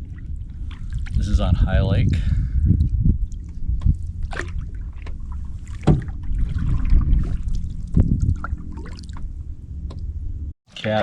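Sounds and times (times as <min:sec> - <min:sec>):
canoe paddle splashing water: 0:00.0 - 0:01.2, 0:02.8 - 0:09.4
water dripping: 0:00.0 - 0:01.4, 0:02.7 - 0:10.1
steady low rumble: 0:00.0 - 0:10.6.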